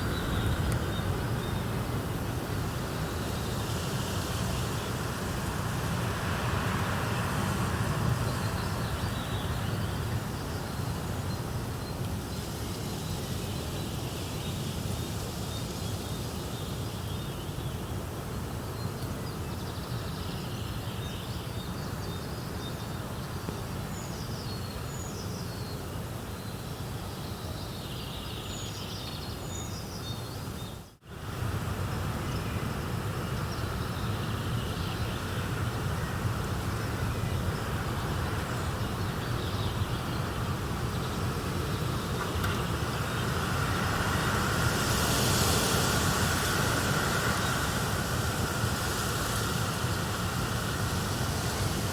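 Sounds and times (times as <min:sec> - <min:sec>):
steady hiss: 0:31.1 - 0:51.9.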